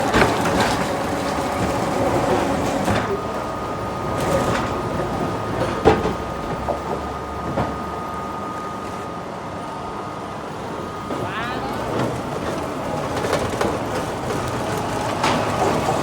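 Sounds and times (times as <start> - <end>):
factory machinery din: 0.0 - 6.6, 10.9 - 16.0.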